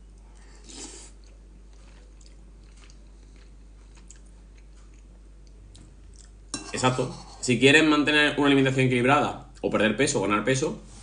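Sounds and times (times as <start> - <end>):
faint chewing: 0.1 - 6.4.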